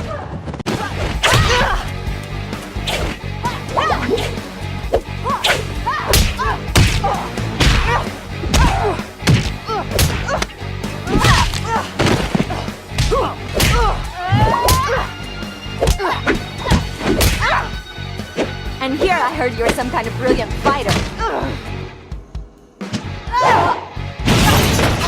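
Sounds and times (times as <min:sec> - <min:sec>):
punches and kicks hitting: 0:00.0 - 0:02.0, 0:02.8 - 0:15.1, 0:15.8 - 0:17.7, 0:20.9 - 0:21.4
film score with low bass: 0:00.7 - 0:25.0.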